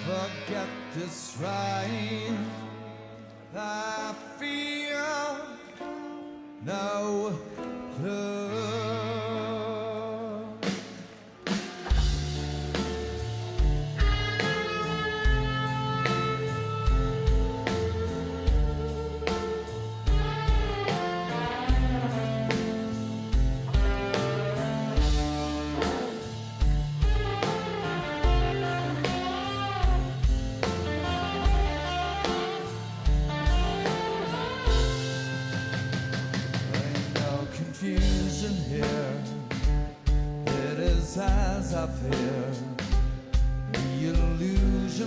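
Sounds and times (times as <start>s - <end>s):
live rock band playing: 0.0s - 9.2s, 10.6s - 45.0s
lead guitar bending notes: 10.6s - 40.5s.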